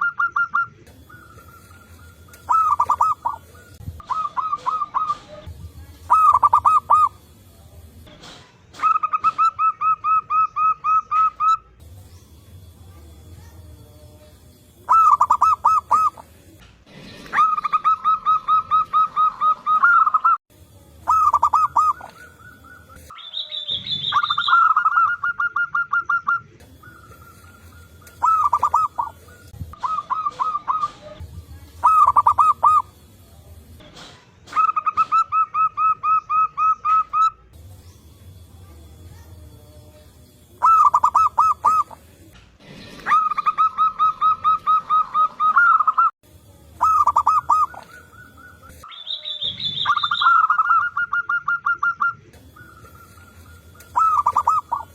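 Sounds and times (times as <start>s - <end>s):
doves cooing: 0.0s - 7.3s, 8.8s - 11.7s, 14.8s - 20.4s, 21.0s - 33.0s, 34.5s - 37.4s, 40.6s - 46.1s, 46.8s - 54.9s
short high-pitched bird call: 21.1s - 29.2s, 46.8s - 54.9s.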